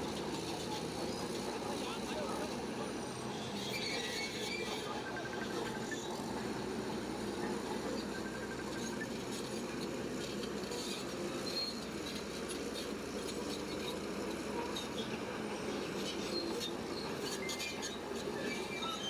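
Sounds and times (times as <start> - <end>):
bulldozer running: 0.0 - 19.0
squeaks and clinks: 3.6 - 4.9.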